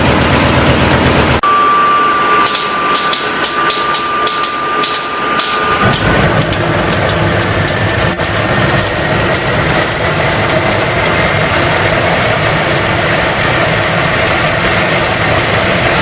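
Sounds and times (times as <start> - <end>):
faint rising whine: 0.0 - 16.0
large engine running: 0.0 - 16.0
sharp ticks: 3.7 - 15.8.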